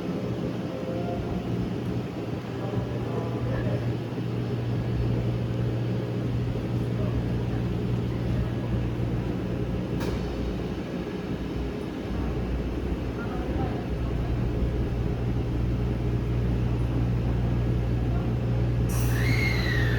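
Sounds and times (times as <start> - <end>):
electric train humming: 0.0 - 19.9.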